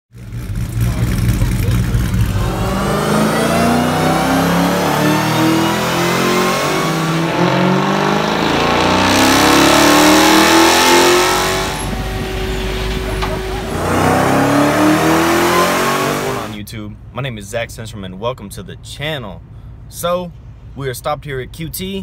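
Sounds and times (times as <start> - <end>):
car engine at full throttle: 0.1 - 16.6.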